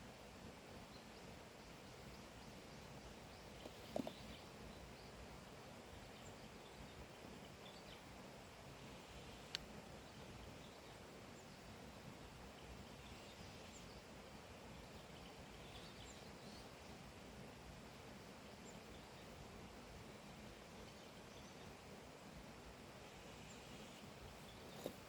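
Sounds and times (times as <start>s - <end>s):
steady low hiss: 0.0s - 25.0s
distant bird chirps: 1.9s - 5.2s.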